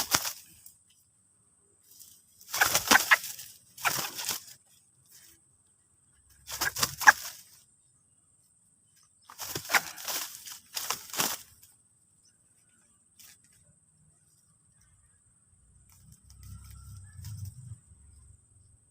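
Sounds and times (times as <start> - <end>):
bird chick chirping: 2.5 - 4.4, 6.5 - 7.4, 9.3 - 11.3.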